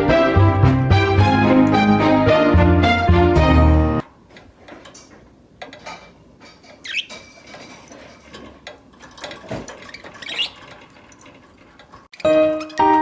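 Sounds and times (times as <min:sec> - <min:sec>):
background music: 0:00.0 - 0:04.0, 0:12.2 - 0:13.0
small clicks and scratches: 0:04.3 - 0:12.9
budgerigars chirping: 0:06.8 - 0:07.3.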